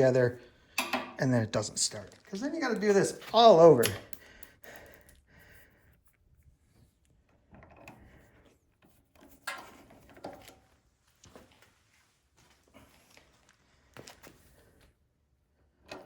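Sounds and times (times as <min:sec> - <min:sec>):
clicks and knocks of parts handled: 0:00.8 - 0:01.2, 0:02.0 - 0:05.3.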